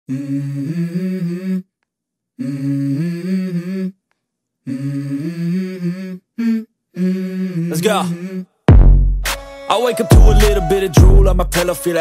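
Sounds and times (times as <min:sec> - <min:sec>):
person humming: 0:00.1 - 0:01.7, 0:02.4 - 0:04.0, 0:04.6 - 0:08.5.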